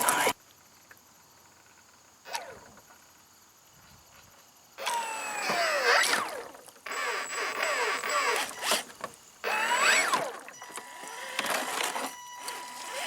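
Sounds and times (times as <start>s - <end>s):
model electric motor whining: 0.0s - 0.4s, 4.8s - 13.0s.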